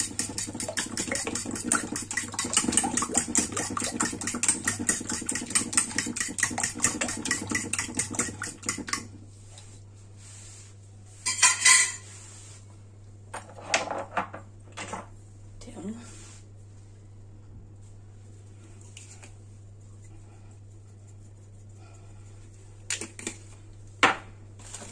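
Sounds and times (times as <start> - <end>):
fork beating eggs in metal bowl: 0.0 - 9.2.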